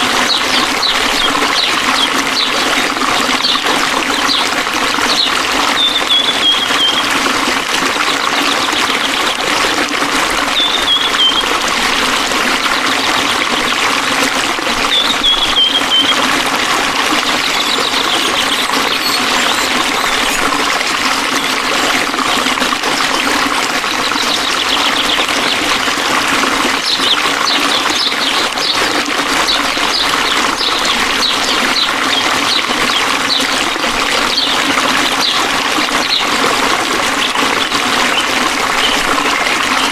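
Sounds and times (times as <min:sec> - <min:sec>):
stream water trickling: 0:00.0 - 0:39.9
bird chirping: 0:00.3 - 0:07.2, 0:10.5 - 0:11.5, 0:14.9 - 0:16.3, 0:17.2 - 0:20.6, 0:24.0 - 0:25.6, 0:26.8 - 0:33.7.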